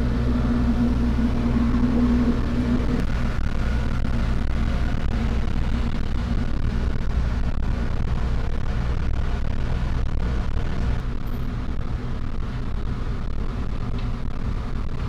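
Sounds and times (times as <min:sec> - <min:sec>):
diesel engines droning: 0:00.0 - 0:04.8
continuous rushing noise: 0:00.0 - 0:15.0.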